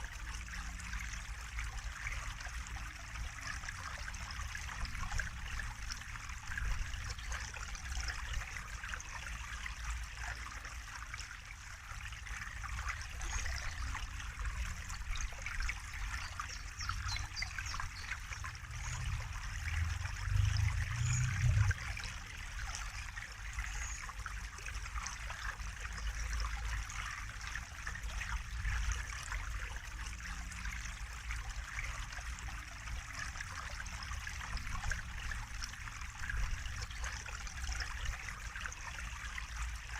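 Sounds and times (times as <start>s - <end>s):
water trickling and splashing: 0.0s - 39.9s
low rumble: 18.4s - 22.1s.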